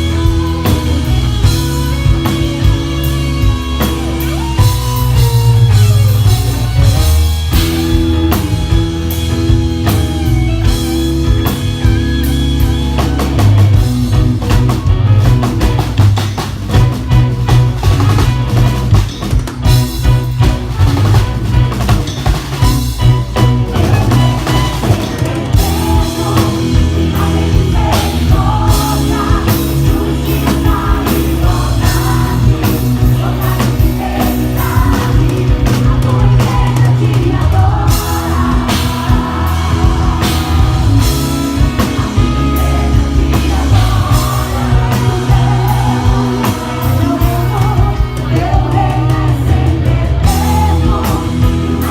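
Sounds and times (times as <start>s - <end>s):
person singing: 0.0s - 5.6s, 23.0s - 51.9s
bass guitar: 0.0s - 51.9s
drum kit: 0.0s - 51.9s
guitar: 0.0s - 51.9s.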